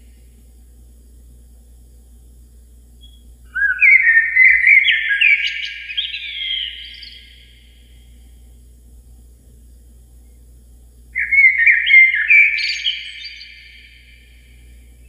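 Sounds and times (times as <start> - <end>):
songbird whistling: 3.0 - 7.7, 11.2 - 14.3.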